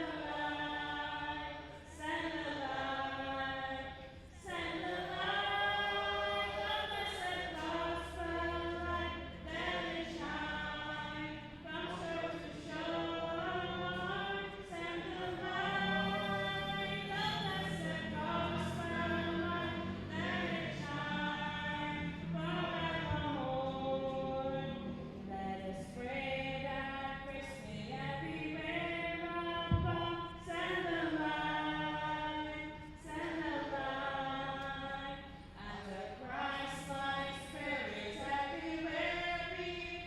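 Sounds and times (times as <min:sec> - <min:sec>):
congregation singing a hymn: 0:00.0 - 0:40.0
low thump: 0:29.7 - 0:30.1.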